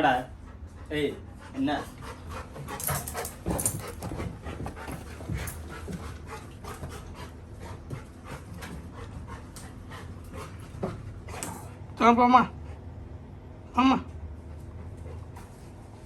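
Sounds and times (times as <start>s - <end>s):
puppy panting: 0.0s - 11.9s.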